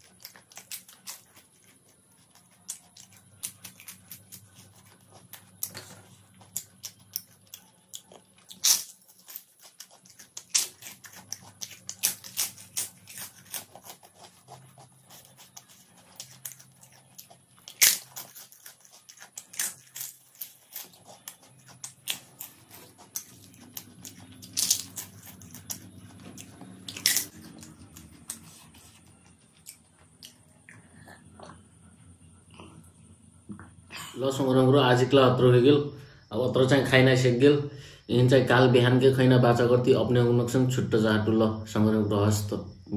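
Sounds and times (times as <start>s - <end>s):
crisp wafer crunching: 0.0s - 30.4s
wet chewing and lip smacks: 0.0s - 31.7s.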